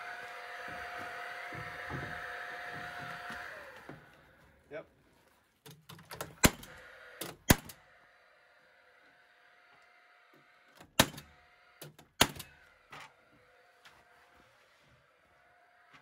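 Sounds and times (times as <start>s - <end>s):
nail gun shots: 6.1s - 7.8s, 10.9s - 12.6s.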